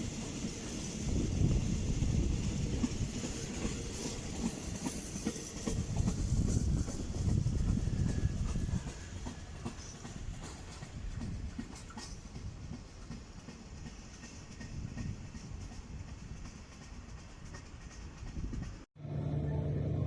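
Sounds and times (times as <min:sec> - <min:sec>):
train wheels clacking on rail joints: 0:00.0 - 0:18.9
freight train rumble: 0:00.0 - 0:20.0.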